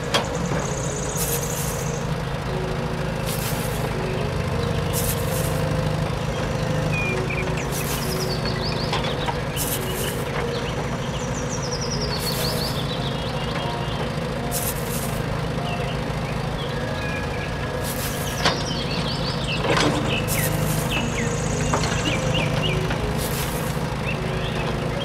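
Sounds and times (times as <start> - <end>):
birds chirping: 0.0 - 25.0
toy excavator motor drone: 0.0 - 25.0
short hissing bursts: 1.2 - 2.0, 4.9 - 5.6, 14.5 - 15.2.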